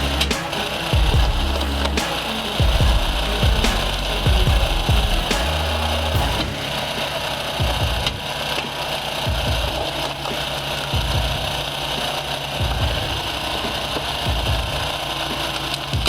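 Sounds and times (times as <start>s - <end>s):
low thumps: 0.0s - 7.0s.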